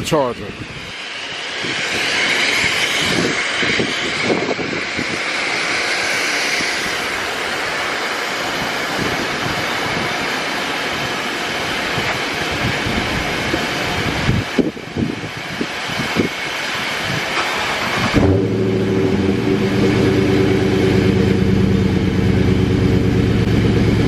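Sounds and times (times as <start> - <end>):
car engine fast idle: 17.4 - 24.0.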